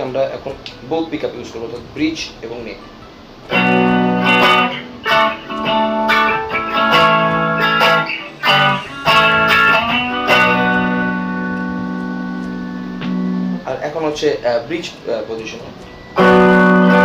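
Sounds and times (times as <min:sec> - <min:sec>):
strummed electric guitar chords: 0:03.4 - 0:13.8, 0:15.7 - 0:17.0.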